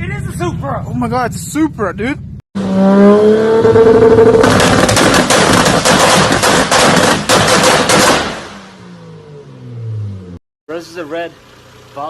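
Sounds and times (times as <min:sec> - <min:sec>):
car engine revving: 0:02.6 - 0:06.8
loud exhaust pops and bangs: 0:04.1 - 0:08.7.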